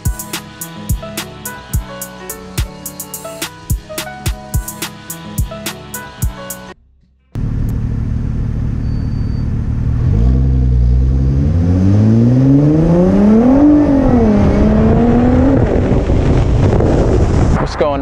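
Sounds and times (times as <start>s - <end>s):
car engine accelerating: 6.9s - 17.6s
road and wind rumble: 7.4s - 18.0s.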